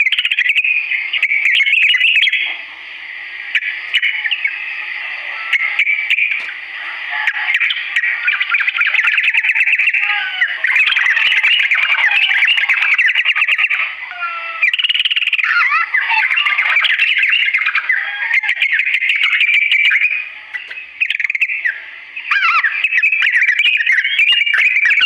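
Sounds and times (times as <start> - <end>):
steady hiss: 0.8 - 8.5, 19.0 - 22.9
bulbul singing chattering notes: 18.6 - 25.0.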